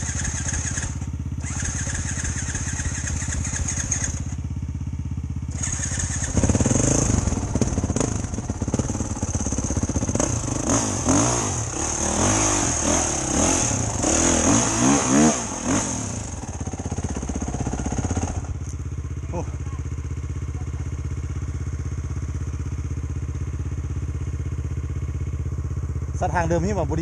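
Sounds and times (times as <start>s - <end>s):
dirt bike engine revving: 0.0s - 4.5s, 5.4s - 18.7s.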